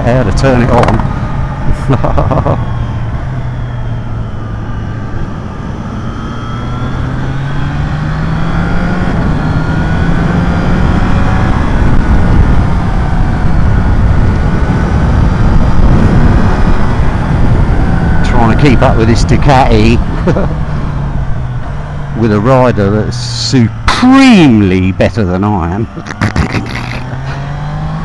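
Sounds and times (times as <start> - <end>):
wind rushing on microphone: 0.0 - 21.9
motorcycle engine accelerating: 0.0 - 28.0.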